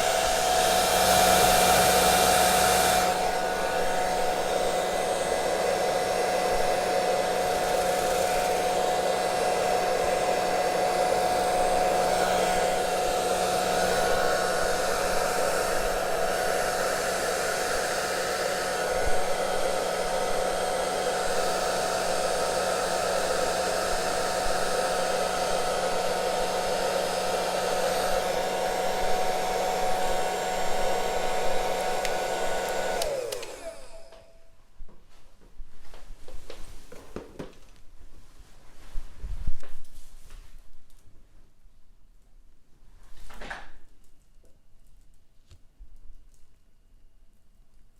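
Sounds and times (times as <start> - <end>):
hair dryer running: 0.0 - 34.4.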